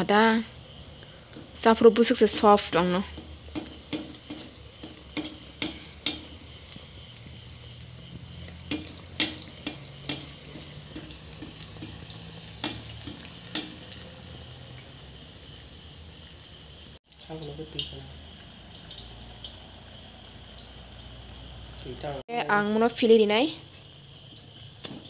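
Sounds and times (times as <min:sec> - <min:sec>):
batter sizzling in hot oil: 0:00.0 - 0:25.0
spatula scraping a pan: 0:03.1 - 0:06.5.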